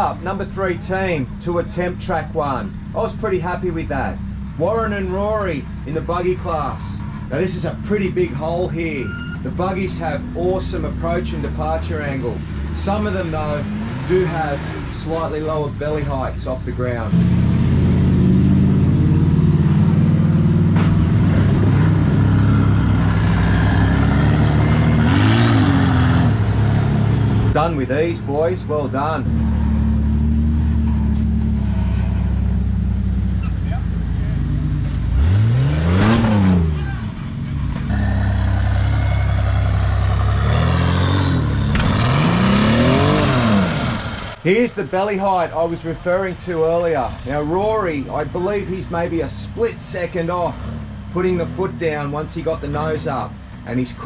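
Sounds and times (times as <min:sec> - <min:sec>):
buggy engine revving under load: 0:00.0 - 0:54.0.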